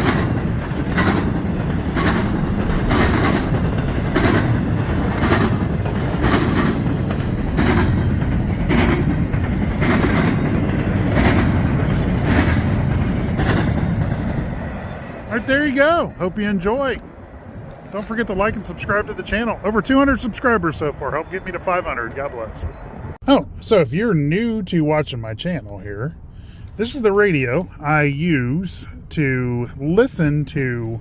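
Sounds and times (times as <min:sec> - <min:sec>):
wheels clattering over rail joints: 0:00.0 - 0:17.0
train rolling rumble: 0:00.0 - 0:31.0.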